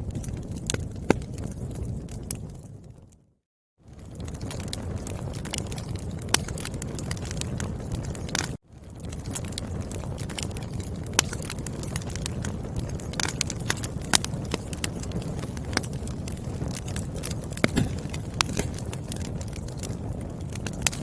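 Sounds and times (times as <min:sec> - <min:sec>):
burning logs popping: 0:00.0 - 0:03.2, 0:03.8 - 0:21.0
low rumble of flames: 0:00.0 - 0:21.0
wood fire crackling: 0:00.0 - 0:21.0.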